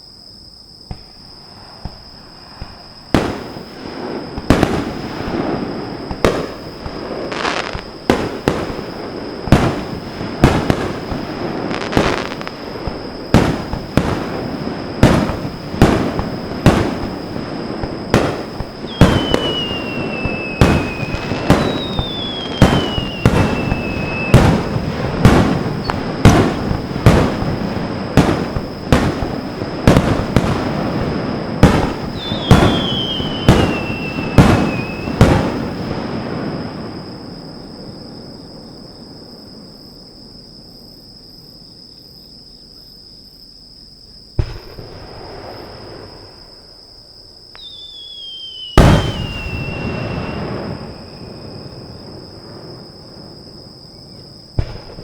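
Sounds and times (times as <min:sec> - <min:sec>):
fireworks bursting: 0:00.8 - 0:38.6, 0:44.4 - 0:55.0
fireworks crackle: 0:00.9 - 0:37.4, 0:47.6 - 0:53.3
whistling firework shells: 0:00.9 - 0:39.2, 0:44.4 - 0:55.0.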